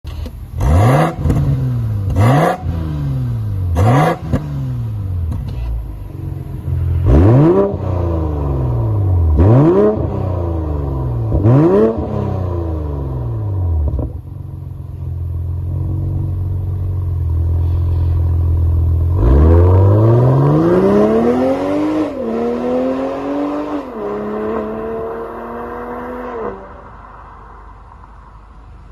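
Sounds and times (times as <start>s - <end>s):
car engine idling: 0.1s - 9.5s, 13.0s - 19.2s
car engine revving: 0.1s - 28.2s
car accelerating hard: 6.4s - 14.2s, 19.0s - 27.2s.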